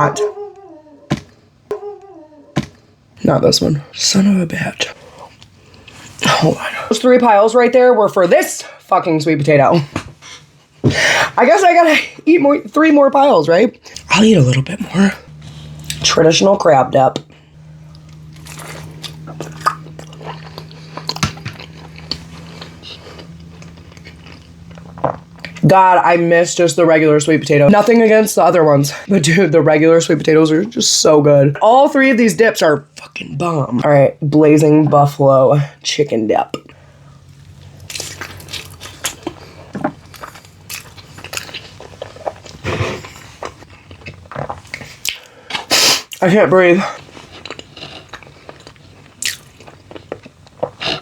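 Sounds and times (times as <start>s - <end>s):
steady low hum: 0.0s - 51.0s
biting food: 17.2s - 25.6s
close-miked chewing: 17.2s - 25.6s, 36.6s - 46.2s, 46.9s - 51.0s.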